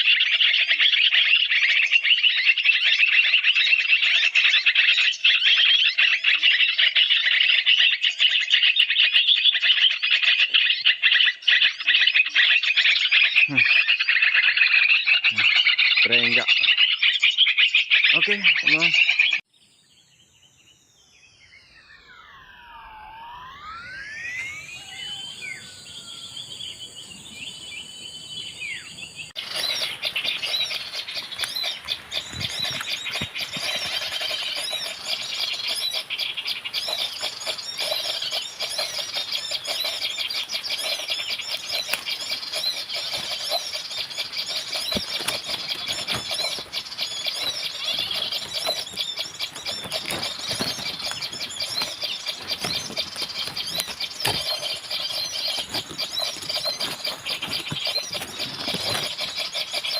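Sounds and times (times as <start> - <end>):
squeaky bird calls: 0.0 - 19.4, 23.8 - 26.6, 28.6 - 59.9
rising and falling whistles: 20.3 - 28.3.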